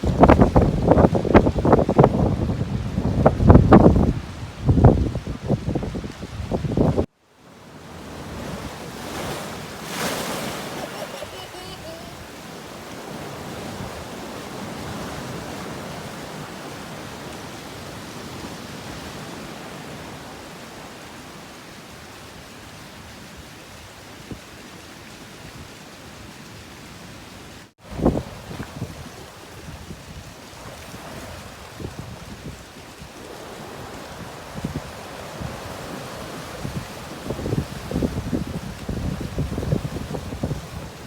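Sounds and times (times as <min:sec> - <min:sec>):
strong wind: 0:00.0 - 0:07.1, 0:27.8 - 0:41.0
waves breaking: 0:00.0 - 0:41.0.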